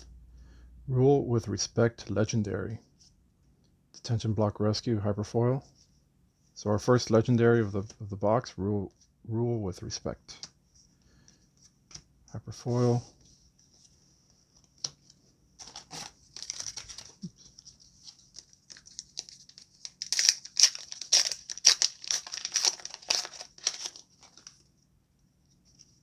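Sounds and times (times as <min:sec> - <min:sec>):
foil wrapper crinkling and tearing: 0:15.6 - 0:24.6.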